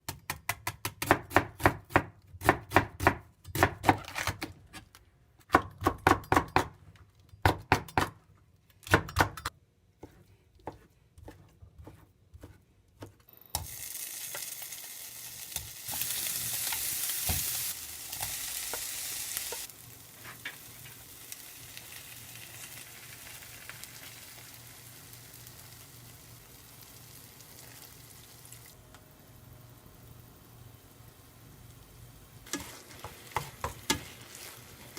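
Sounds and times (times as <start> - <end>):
knife chopping on cutting board: 0.1 - 4.5
food sizzling in frying pan: 13.6 - 28.8, 29.7 - 34.9.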